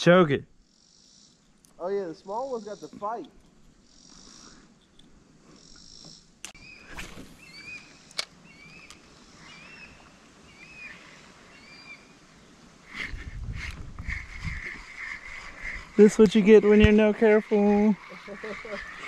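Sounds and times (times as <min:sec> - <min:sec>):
bird chirping: 0:00.7 - 0:19.0.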